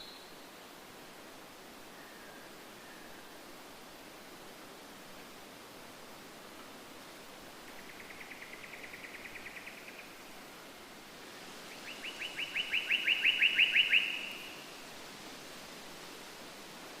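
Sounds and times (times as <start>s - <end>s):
steady background hiss: 0.0s - 17.0s
songbird trilling: 11.8s - 14.6s.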